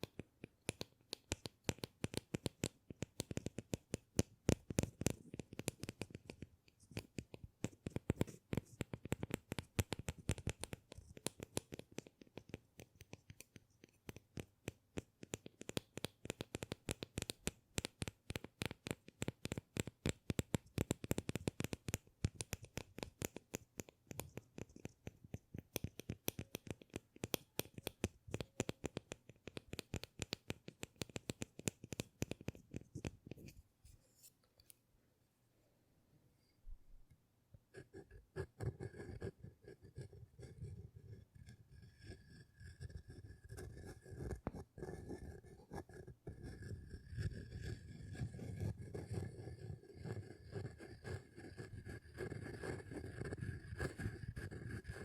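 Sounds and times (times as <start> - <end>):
hands tapping and clicking object: 0.0 - 33.6.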